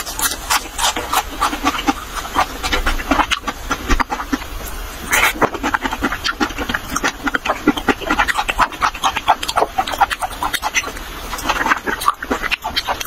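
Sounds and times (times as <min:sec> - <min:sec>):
crisp mouth clicks and squelches: 0:00.0 - 0:13.0
wet chewing and lip-smacking: 0:00.0 - 0:13.0.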